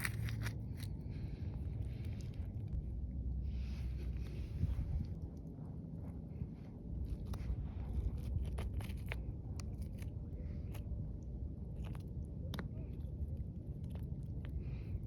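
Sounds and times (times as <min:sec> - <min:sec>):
beach glass and pebbles crunching: 0:00.0 - 0:00.9
wind rumble on microphone: 0:00.0 - 0:15.0.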